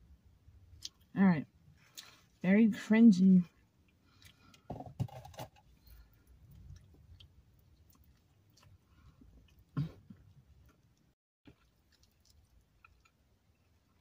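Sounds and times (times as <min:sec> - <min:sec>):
close chewing of food: 0:03.6 - 0:14.0.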